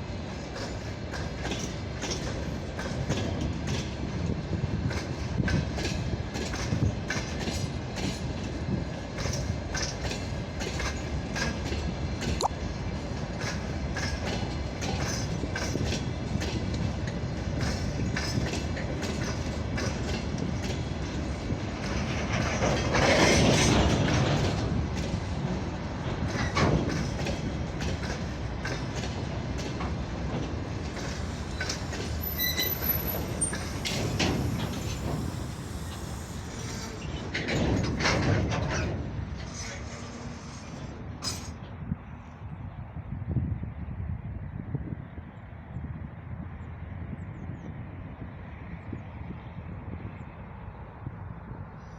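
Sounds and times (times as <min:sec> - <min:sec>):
train wheels clickety-clack: 0:00.0 - 0:41.8
high-pitched wheel squeal: 0:31.5 - 0:37.4.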